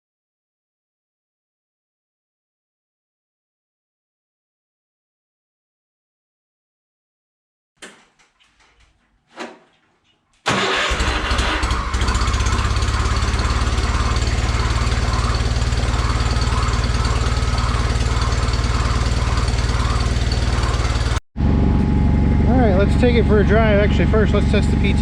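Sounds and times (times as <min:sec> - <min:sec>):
tractor engine starting and running: 0:07.8 - 0:25.0.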